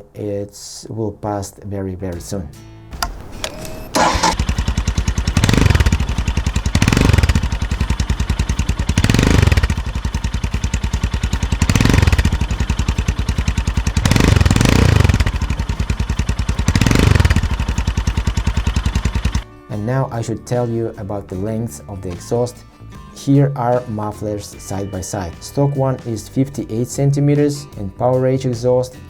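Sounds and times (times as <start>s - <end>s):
motorcycle engine revving: 3.0s - 19.4s.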